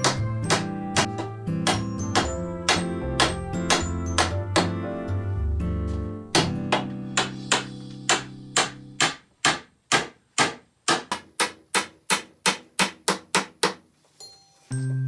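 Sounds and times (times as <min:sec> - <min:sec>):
hammer blows: 0:00.0 - 0:04.8.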